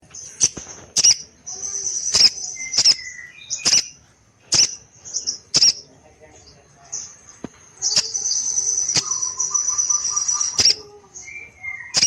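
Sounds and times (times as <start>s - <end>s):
high continuous bird twitter: 0.0s - 12.0s
bird calling high notes: 7.8s - 12.0s.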